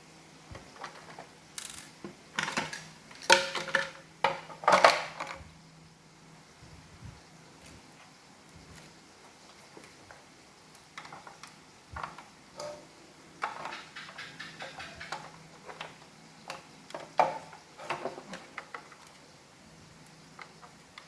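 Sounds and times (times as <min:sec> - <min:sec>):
hard plastic parts clicking: 0:13.4 - 0:19.2.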